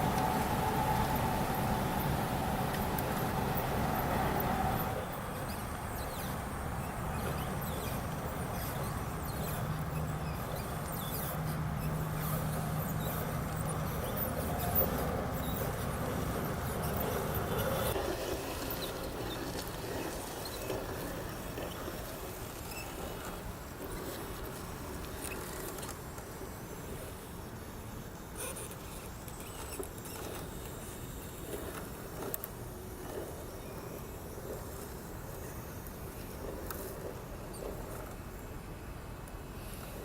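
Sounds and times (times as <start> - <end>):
electric motor and gearbox whine: 0.0 - 39.0.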